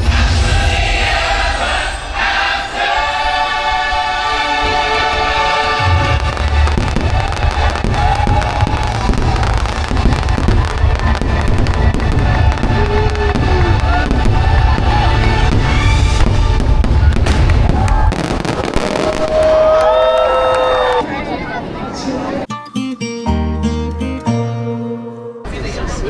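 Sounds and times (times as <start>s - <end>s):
loud show music: 0.0s - 17.6s
fireworks bangs and crackles: 5.2s - 21.0s.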